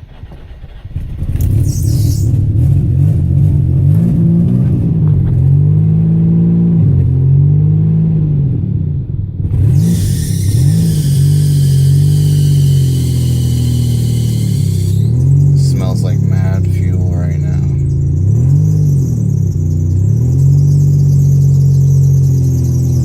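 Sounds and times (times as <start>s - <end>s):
car engine running unevenly: 8.9s - 23.0s
steady hiss: 9.8s - 17.5s.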